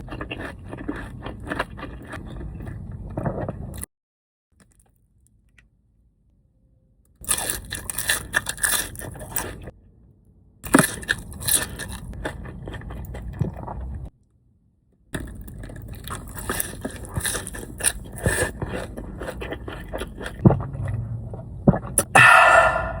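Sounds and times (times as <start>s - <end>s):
crunching food being eaten: 0.0s - 3.9s, 7.2s - 9.7s, 10.6s - 14.0s, 15.2s - 21.0s.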